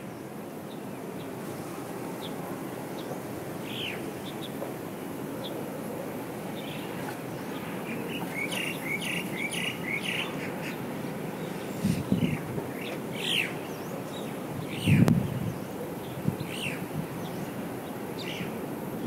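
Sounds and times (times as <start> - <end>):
steady background noise: 0.0 - 19.0
small birds chirping: 6.6 - 18.6.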